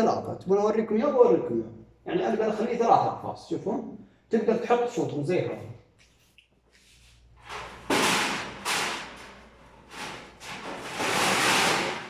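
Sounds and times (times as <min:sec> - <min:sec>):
cage parts sliding: 0:06.9 - 0:12.0.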